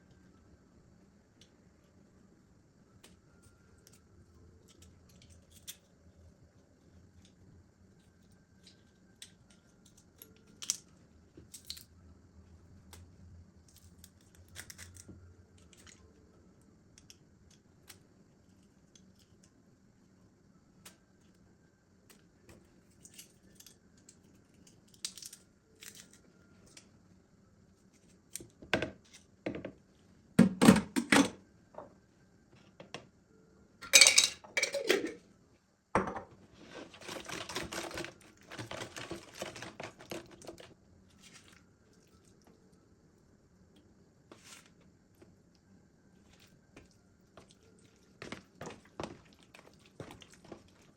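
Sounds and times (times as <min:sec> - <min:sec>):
utensils and dishes clattering: 0:33.8 - 0:35.2.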